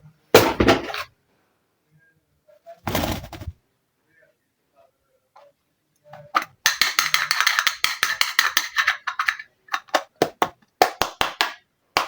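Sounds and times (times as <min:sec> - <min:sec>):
plastic toy pieces clicking: 0:06.4 - 0:10.1.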